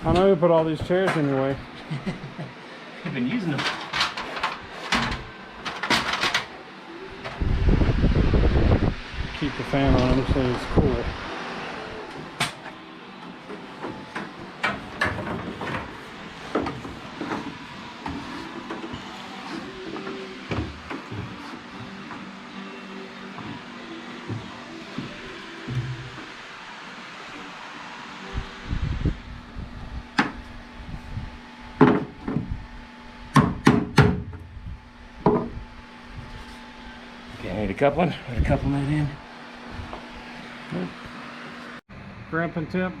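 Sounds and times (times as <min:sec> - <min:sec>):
fan humming: 0:00.0 - 0:43.0
plumbing tools clunking and rattling: 0:03.0 - 0:06.5, 0:13.8 - 0:19.1.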